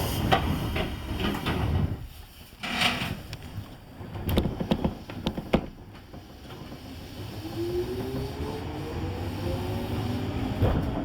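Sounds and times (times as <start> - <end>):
traction motor whine rising: 7.1 - 10.7
train clunks: 10.0 - 11.0.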